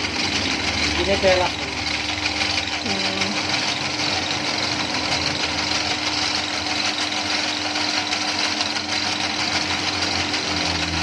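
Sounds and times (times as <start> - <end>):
machine mechanical clatter: 0.0 - 11.0
motor hum: 0.0 - 11.0.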